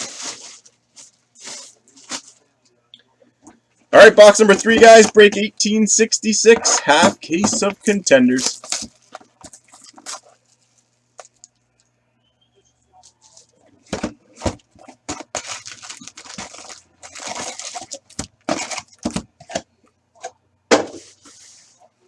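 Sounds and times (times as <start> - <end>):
packaging tearing and crinkling: 0.0 - 2.4, 8.4 - 11.5, 14.8 - 19.2.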